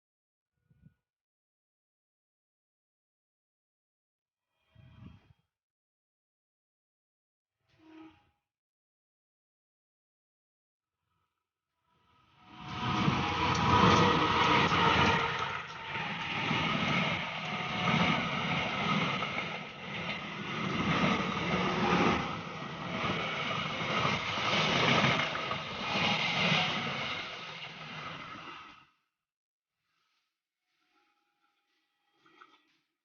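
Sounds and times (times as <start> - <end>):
train rumbling past: 12.4 - 28.8.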